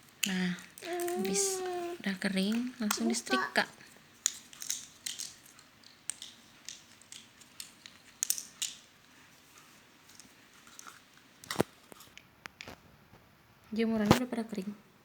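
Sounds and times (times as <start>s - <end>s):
plastic toy parts clicking: 0.0s - 9.0s, 10.1s - 12.8s.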